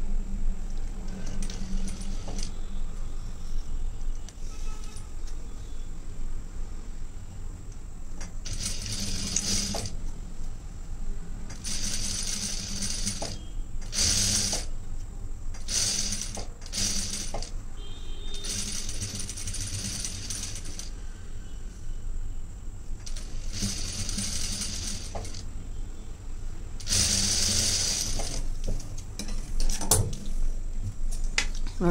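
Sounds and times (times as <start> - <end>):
sewing machine stitching: 8.4 - 10.0, 11.5 - 14.7, 15.6 - 17.5, 18.3 - 20.9, 23.1 - 25.4, 26.8 - 28.5.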